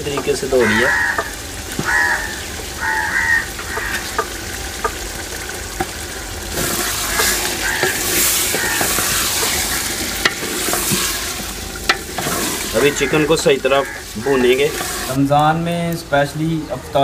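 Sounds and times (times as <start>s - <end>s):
chicken sizzling in hot oil: 0.0s - 17.0s
crow cawing: 0.5s - 5.0s, 6.7s - 10.0s, 12.7s - 14.7s
wooden spoon scraping a pot: 6.5s - 15.2s.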